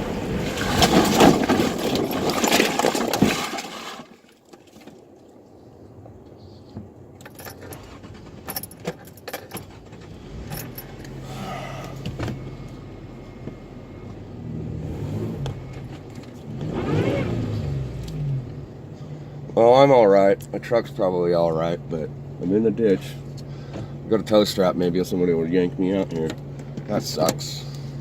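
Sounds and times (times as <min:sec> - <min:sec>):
engine running low: 0:00.0 - 0:02.9, 0:05.3 - 0:28.0
truck rumbling with bangs: 0:00.0 - 0:03.6, 0:07.6 - 0:28.0
clinks and rattles: 0:00.6 - 0:04.0, 0:07.2 - 0:11.2.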